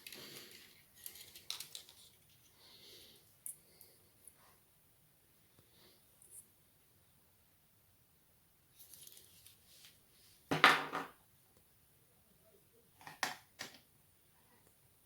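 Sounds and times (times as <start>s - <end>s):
laptop parts and tools handled: 0.0s - 2.6s, 8.8s - 10.0s.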